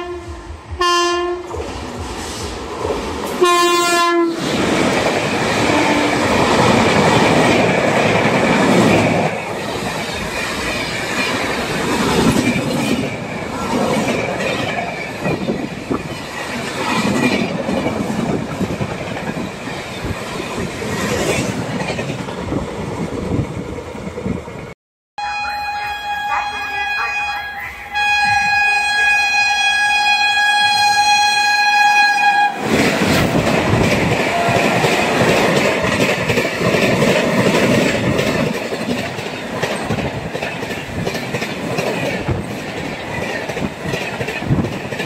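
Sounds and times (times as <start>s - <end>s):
locomotive horn blaring: 0.0s - 1.6s, 3.4s - 4.4s, 5.6s - 6.2s, 25.2s - 32.7s
train rushing past: 0.0s - 45.0s.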